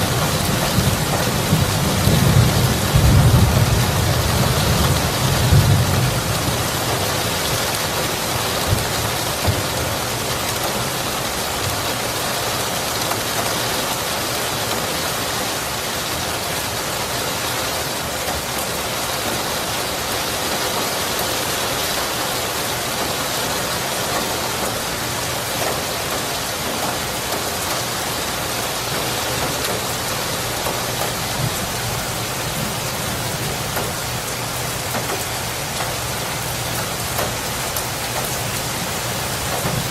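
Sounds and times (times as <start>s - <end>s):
low thunder rumble: 0.0s - 7.7s
heavy rainfall hissing: 0.0s - 39.9s.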